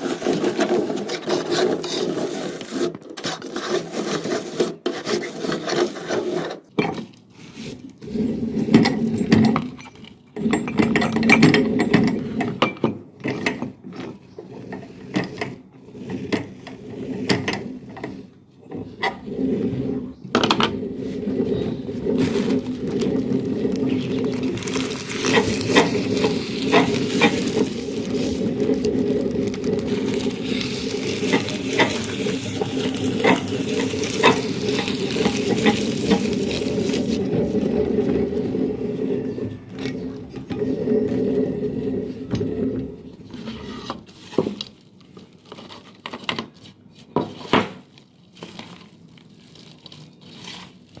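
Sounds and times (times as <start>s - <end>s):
popcorn cracking and crunching: 22.0s - 37.3s, 44.4s - 51.0s
meat grinder motor running: 22.0s - 38.2s.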